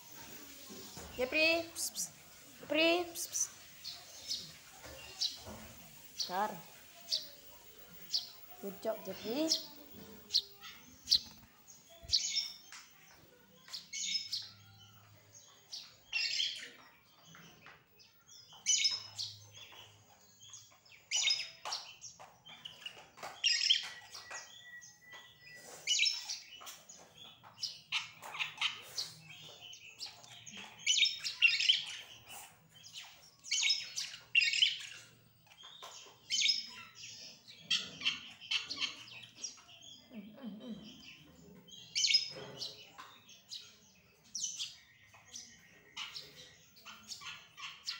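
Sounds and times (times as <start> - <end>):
small bird chirping: 0.0 - 47.9.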